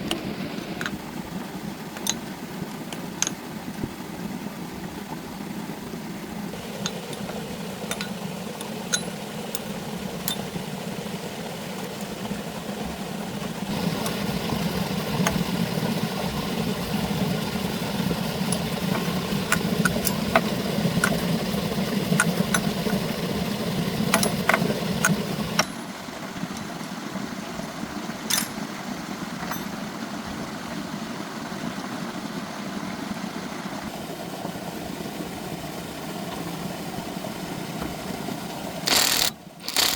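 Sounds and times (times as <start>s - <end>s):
tractor engine running: 12.2s - 28.6s.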